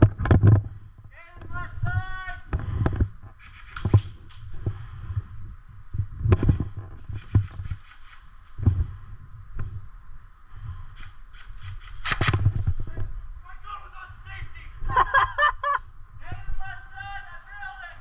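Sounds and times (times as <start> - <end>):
faint steady hiss: 0.6 - 18.0
sharp clicks: 3.4 - 4.5, 7.2 - 8.6, 11.0 - 12.8.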